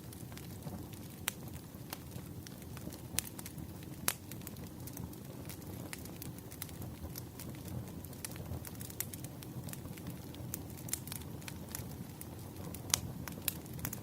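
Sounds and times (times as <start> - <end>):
low hiss of flames: 0.0 - 14.0
wood fire crackling and popping: 0.0 - 14.0.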